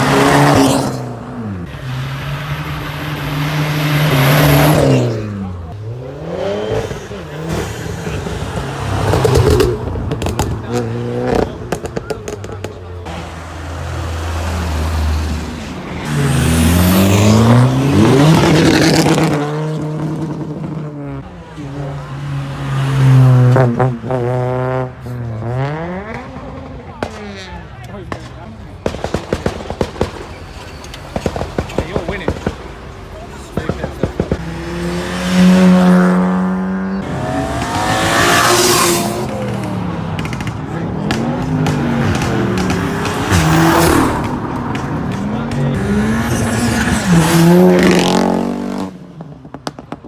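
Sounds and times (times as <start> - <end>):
car engine revving: 0.0 - 28.2, 31.0 - 50.0.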